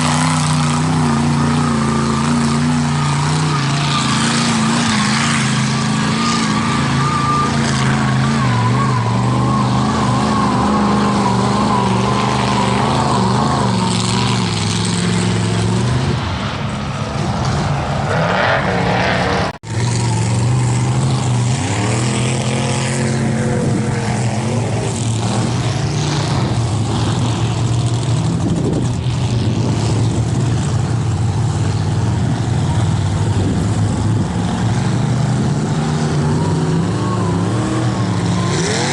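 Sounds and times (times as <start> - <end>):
truck engine revving in mud: 0.0 - 38.9.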